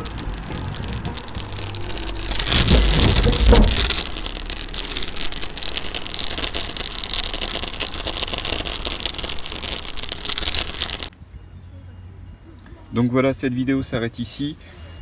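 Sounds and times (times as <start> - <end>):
heavy thumps: 0.0 - 4.5
scooter wheels rolling on asphalt: 0.0 - 11.1.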